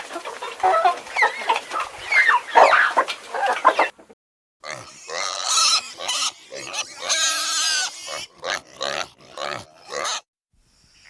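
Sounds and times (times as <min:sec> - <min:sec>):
chickens clucking: 0:00.0 - 0:04.2.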